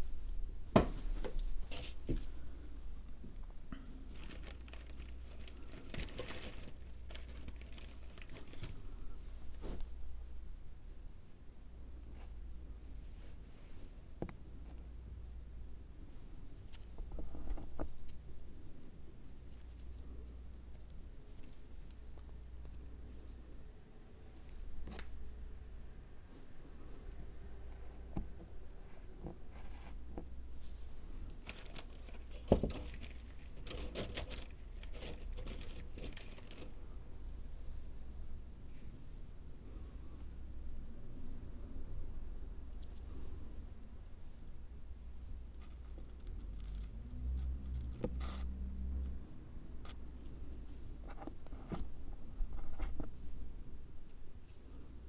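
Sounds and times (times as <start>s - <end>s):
light rustling and crinkling: 0.1s - 10.5s, 16.0s - 23.6s, 26.3s - 37.2s, 45.1s - 48.5s, 49.8s - 55.0s.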